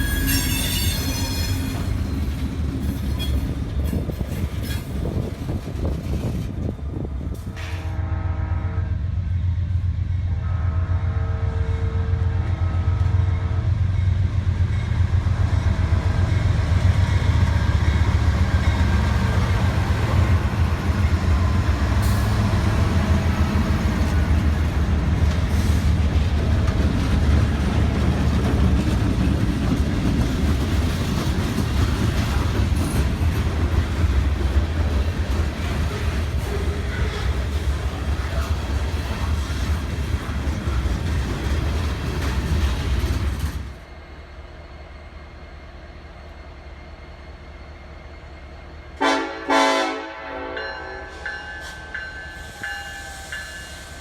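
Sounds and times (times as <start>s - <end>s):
train rumbling: 0.0s - 54.0s
train horn blasts: 7.4s - 9.1s, 10.3s - 13.6s, 49.0s - 53.7s.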